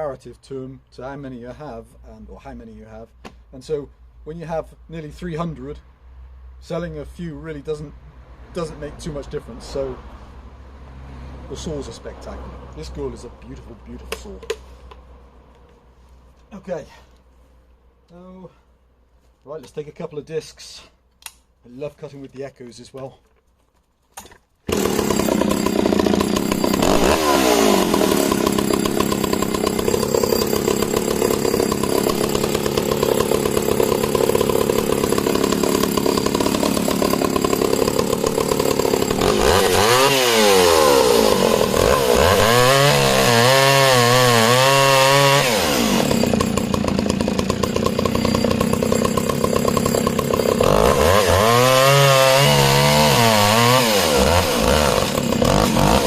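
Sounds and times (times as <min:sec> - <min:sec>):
chainsaw cutting log: 0:24.7 - 0:56.0.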